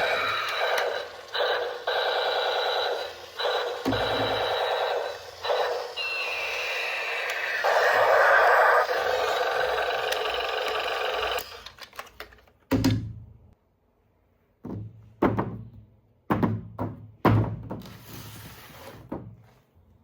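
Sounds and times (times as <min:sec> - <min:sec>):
hissy electronic burst: 0:00.0 - 0:10.0
falling electronic tone: 0:00.0 - 0:11.4.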